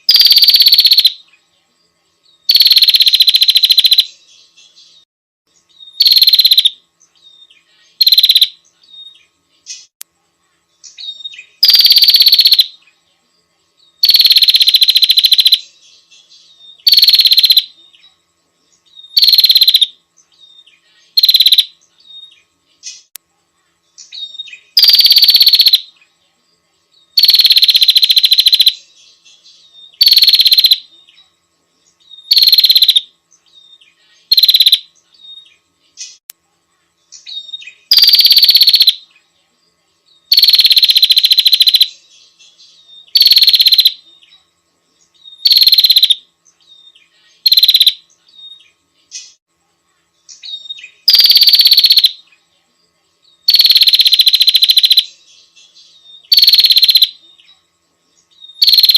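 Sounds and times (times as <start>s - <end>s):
bird buzzy trill call: 0.0s - 1.2s, 2.5s - 4.1s, 6.0s - 6.8s, 7.9s - 8.6s, 11.0s - 12.8s, 14.0s - 15.7s, 16.8s - 17.8s, 19.1s - 20.0s, 21.1s - 21.7s, 24.2s - 25.9s, 27.2s - 28.8s, 30.0s - 30.9s, 32.2s - 33.1s, 34.3s - 34.9s, 37.3s - 39.0s, 40.3s - 42.0s, 43.1s - 44.0s, 45.4s - 46.2s, 47.4s - 48.0s, 50.5s - 52.2s, 53.5s - 55.1s, 56.2s - 57.2s, 58.6s - 58.9s.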